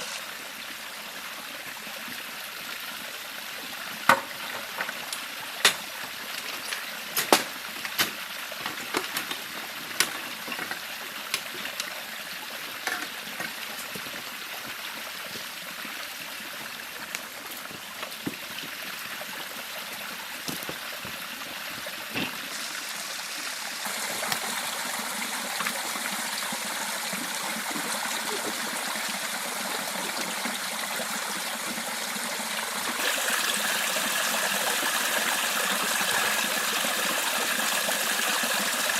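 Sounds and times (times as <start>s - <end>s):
river flowing: 10.4s - 38.9s.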